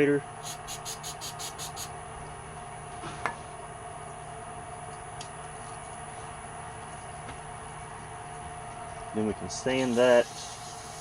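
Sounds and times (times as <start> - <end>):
steady machine hum: 0.3 - 2.8
pump spray bottle spritzes: 0.4 - 1.9, 9.9 - 11.0
sharp click: 0.4 - 1.9.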